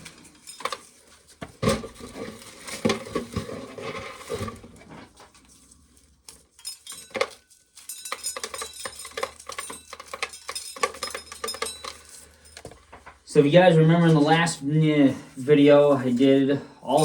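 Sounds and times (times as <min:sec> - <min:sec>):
corn kernels clicking and rattling: 0:00.0 - 0:13.1.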